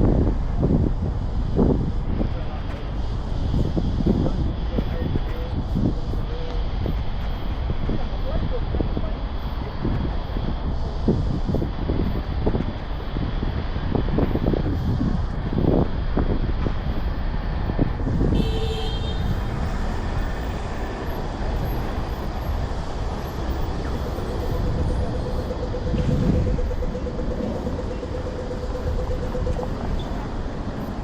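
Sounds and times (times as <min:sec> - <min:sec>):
vehicles passing: 0:00.0 - 0:31.0
steady tone: 0:19.9 - 0:31.0.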